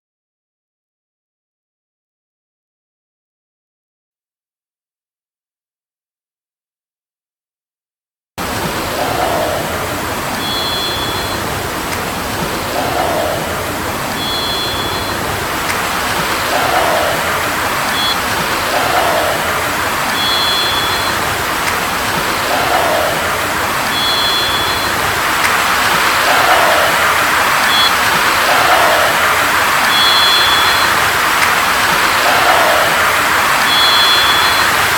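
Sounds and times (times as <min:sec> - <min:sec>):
steady rushing noise: 0:08.4 - 0:34.9.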